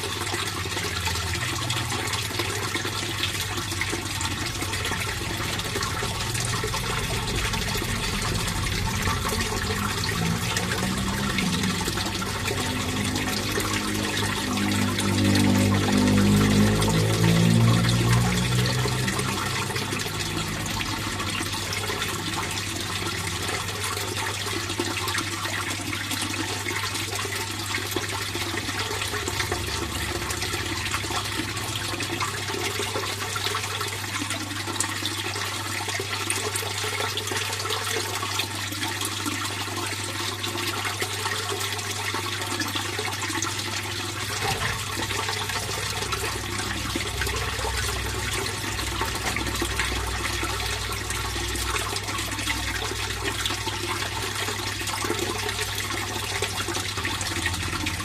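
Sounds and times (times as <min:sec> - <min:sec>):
pond water flowing: 0:00.0 - 0:58.0.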